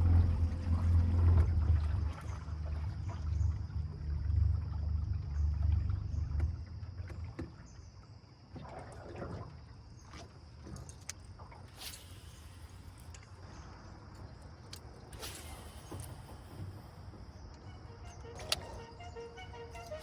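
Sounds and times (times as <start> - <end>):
boat engine rumble: 0.0 - 20.0.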